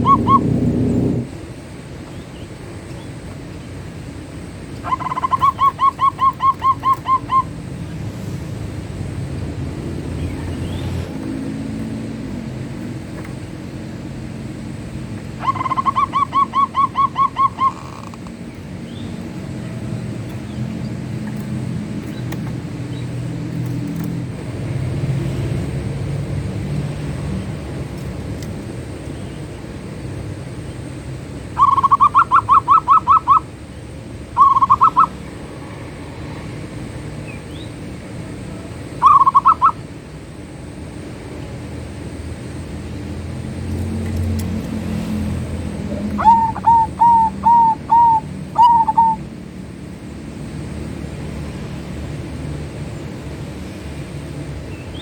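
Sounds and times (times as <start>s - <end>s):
dove cooing: 0.0s - 1.3s, 4.8s - 7.8s, 15.0s - 18.5s, 31.6s - 33.5s, 34.4s - 35.2s, 38.5s - 39.8s, 45.0s - 49.3s
steady low rumble: 0.0s - 3.2s.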